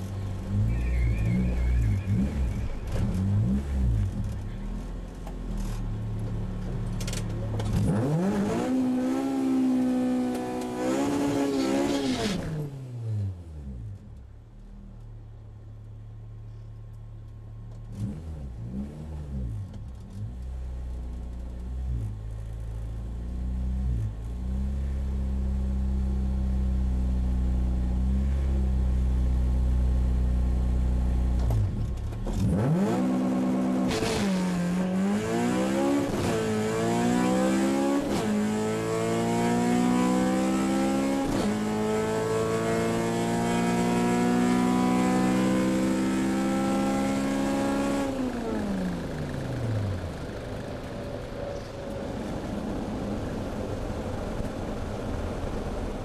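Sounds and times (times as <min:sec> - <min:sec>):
car engine revving and idling: 0:00.0 - 0:56.0.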